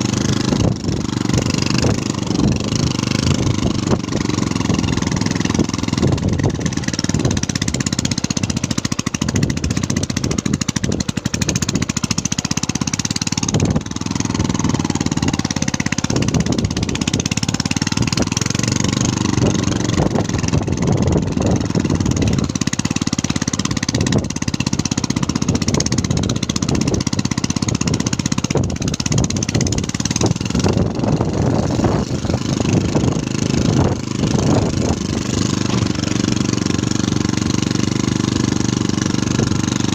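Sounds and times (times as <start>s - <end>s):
engine running with low pulsing: 0.0s - 39.9s.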